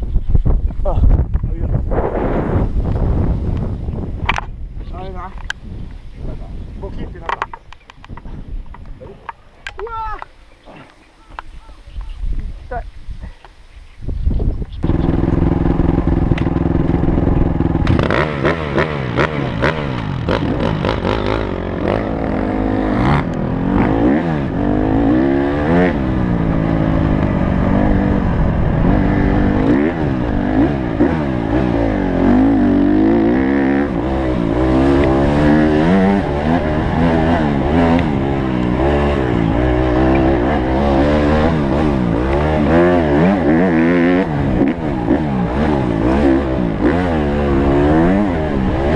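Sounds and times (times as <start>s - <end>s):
motocross bike engine revving: 14.8s - 48.9s.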